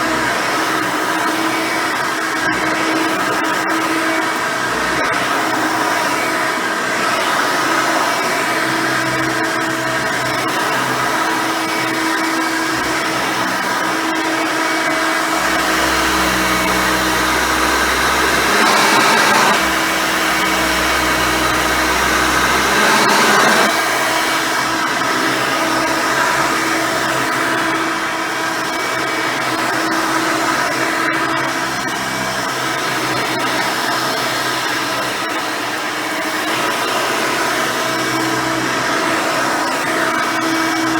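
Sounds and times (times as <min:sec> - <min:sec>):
upright vacuum cleaner running: 0:14.6 - 0:28.5.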